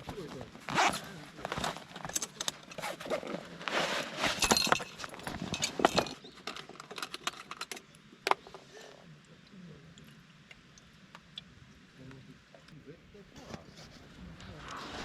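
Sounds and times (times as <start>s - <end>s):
camping gear clinking and rustling: 0.0s - 8.8s.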